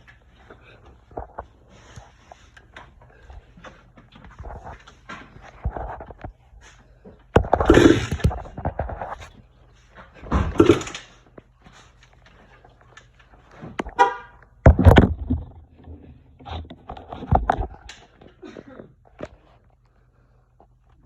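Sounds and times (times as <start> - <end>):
engine being kick-started: 7.5 - 8.6, 10.3 - 11.1.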